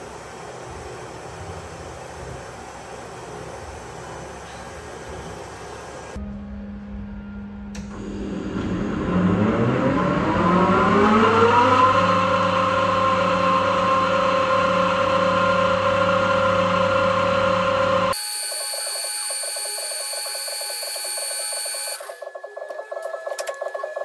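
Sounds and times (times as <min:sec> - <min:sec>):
low hum: 0:06.1 - 0:18.1
grinder motor whine: 0:07.9 - 0:23.0.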